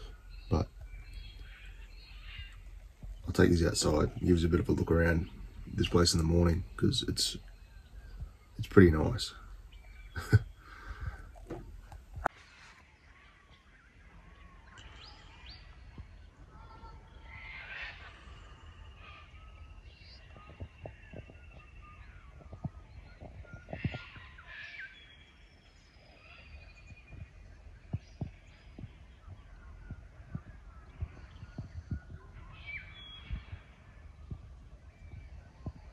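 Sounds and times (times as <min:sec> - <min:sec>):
faint low rumble: 0:00.0 - 0:12.3
birds calling and chirping: 0:00.0 - 0:35.9.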